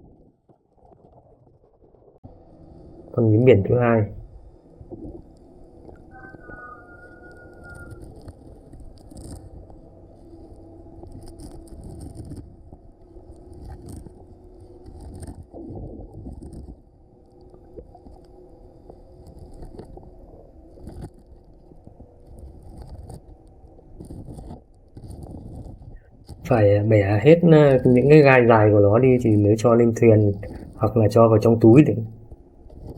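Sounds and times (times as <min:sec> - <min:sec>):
low underwater rumble: 0:00.0 - 0:22.2.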